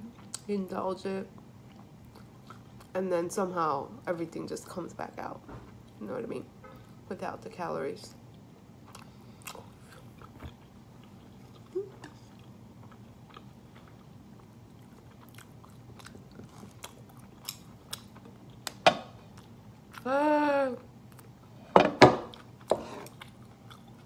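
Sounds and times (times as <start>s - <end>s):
person chewing noodles: 1.6s - 2.9s, 8.3s - 20.1s, 22.3s - 24.0s.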